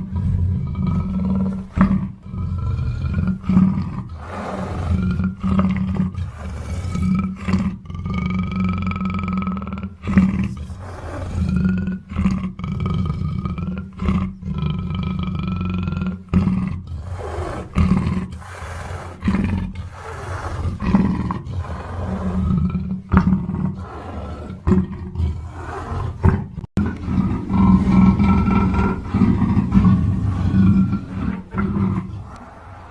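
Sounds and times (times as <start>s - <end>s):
panther roaring and growling: 0.0s - 32.9s.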